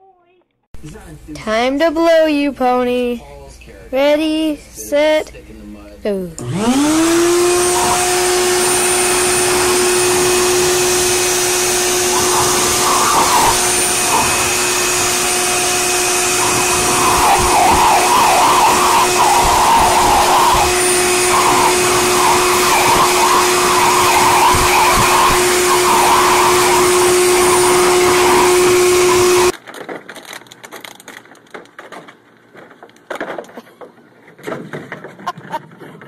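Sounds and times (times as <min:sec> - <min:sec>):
electric blower motor whining: 0:06.4 - 0:29.6
faint clicks and rustles: 0:29.6 - 0:36.0.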